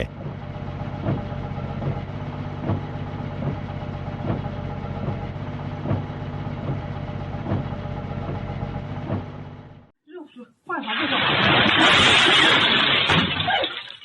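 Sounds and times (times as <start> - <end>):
vehicle engine running: 0.0 - 9.9.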